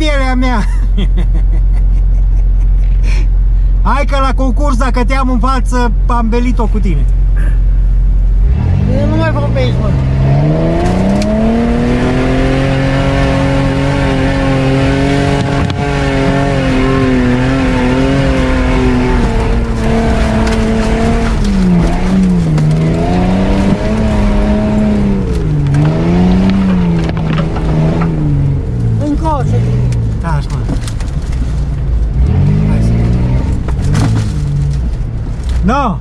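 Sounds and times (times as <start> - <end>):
off-road vehicle engine revving: 6.9 - 35.7
branches scraping vehicle: 8.4 - 35.8.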